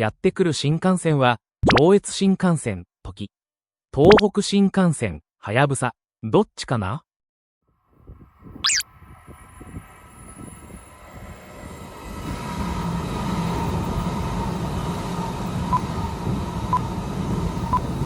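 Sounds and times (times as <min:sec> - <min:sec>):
high-speed train rumble: 0:07.9 - 0:18.0.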